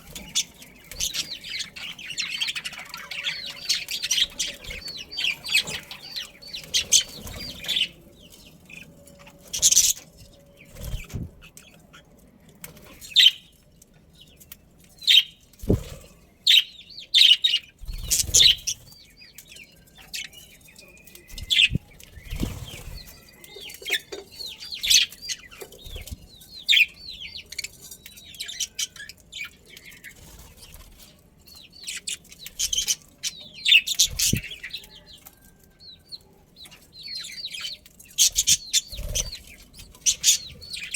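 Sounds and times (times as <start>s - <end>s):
budgerigars chirping: 16.5s - 19.0s, 37.2s - 40.9s.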